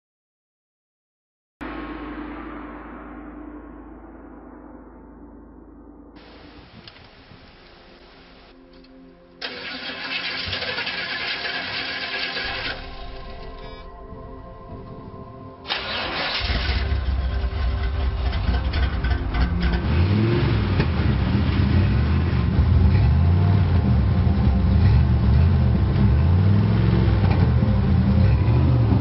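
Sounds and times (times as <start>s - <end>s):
car engine revving: 9.4s - 13.9s, 15.7s - 29.0s.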